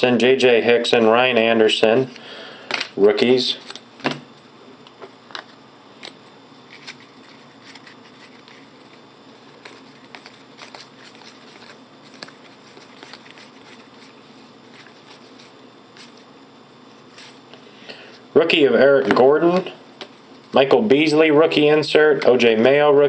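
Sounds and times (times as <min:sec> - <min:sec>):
cards rustling: 0:05.3 - 0:16.3, 0:17.0 - 0:17.5
cards clicking and tapping: 0:09.6 - 0:14.1.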